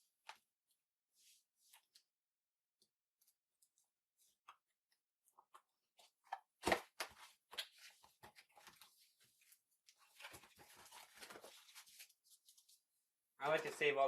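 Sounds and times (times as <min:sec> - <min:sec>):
cardboard rustling: 0:06.0 - 0:12.8.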